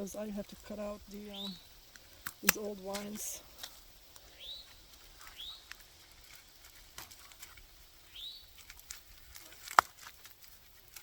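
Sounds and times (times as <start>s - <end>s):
bird chirp: 0.0s - 3.4s, 4.2s - 5.9s, 8.0s - 8.6s
vines being cut and pulled: 1.9s - 3.9s, 4.6s - 11.0s.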